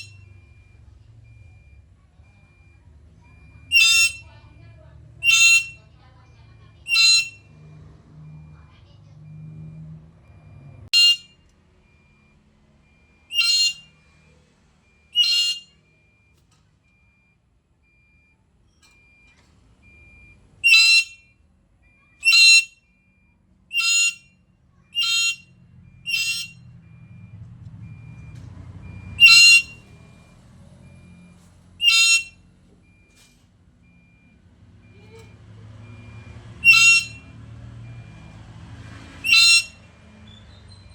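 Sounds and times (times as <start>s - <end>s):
parrot whistled calls: 3.7s - 4.3s, 5.2s - 5.8s, 6.9s - 7.6s, 13.3s - 13.9s, 15.2s - 15.8s, 20.6s - 21.2s, 22.2s - 22.8s, 23.7s - 24.2s, 25.0s - 25.5s, 26.1s - 26.6s, 29.1s - 29.8s, 31.8s - 32.4s, 36.6s - 37.4s, 39.2s - 40.9s.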